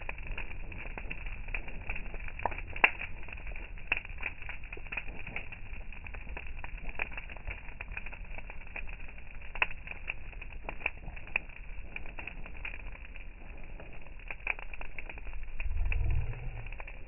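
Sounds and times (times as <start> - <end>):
fire crackling and popping: 0.0 - 17.0
low rumble: 10.2 - 17.0.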